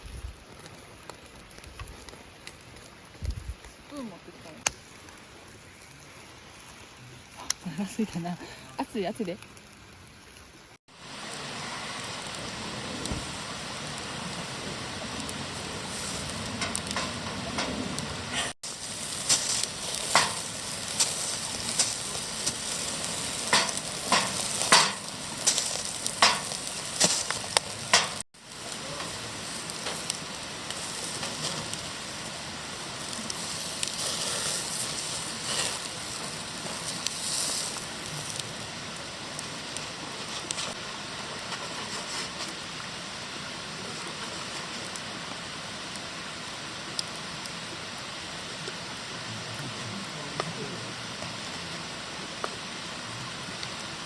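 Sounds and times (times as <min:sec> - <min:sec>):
sharp pops and crackles: 0:00.0 - 0:08.1, 0:12.0 - 0:43.0
food sizzling in a pan: 0:03.9 - 0:54.0.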